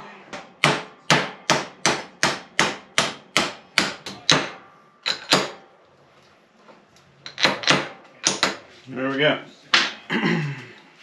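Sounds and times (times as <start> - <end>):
hammer striking metal part: 0.6 - 5.6.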